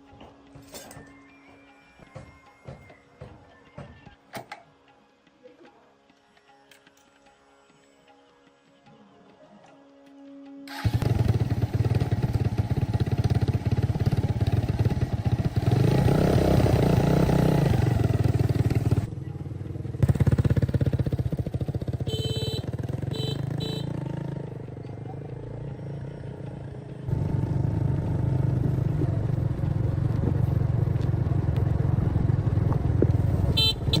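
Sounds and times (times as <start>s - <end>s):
small motorcycle engine running: 10.7s - 34.0s.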